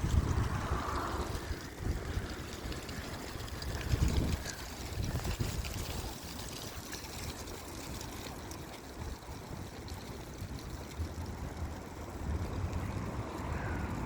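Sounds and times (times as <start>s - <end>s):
wind on microphone: 0.0s - 6.8s
traffic rumble: 0.0s - 14.0s.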